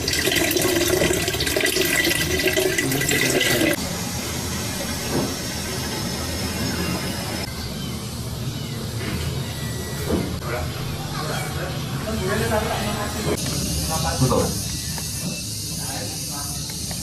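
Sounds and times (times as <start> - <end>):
water running and splashing: 0.0 - 3.8.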